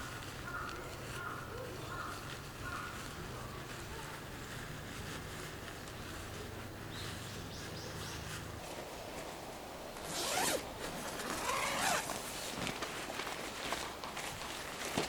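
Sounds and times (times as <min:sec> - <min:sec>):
zipper pulled: 0:10.0 - 0:12.2.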